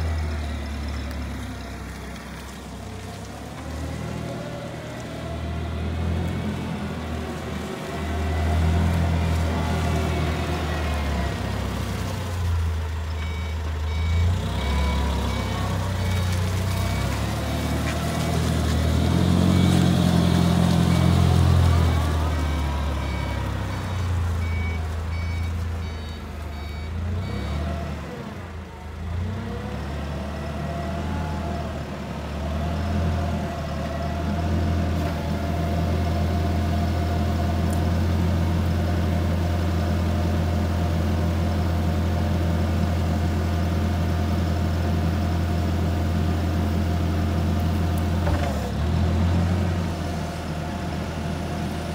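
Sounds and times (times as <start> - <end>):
truck engine running: 0.0 - 51.9
reversing alarm beeping: 13.2 - 17.2, 21.8 - 27.6.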